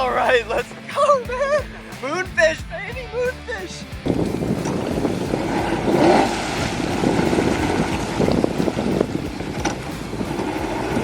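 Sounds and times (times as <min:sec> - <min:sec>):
wind buffeting microphone: 0:04.0 - 0:11.0
water sloshing around kayak: 0:04.1 - 0:11.0.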